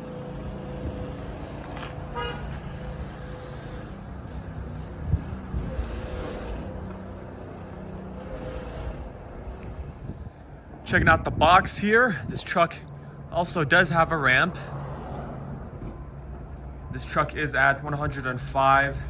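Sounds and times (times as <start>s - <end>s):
running engine: 0.0s - 11.1s
road traffic: 0.0s - 19.0s.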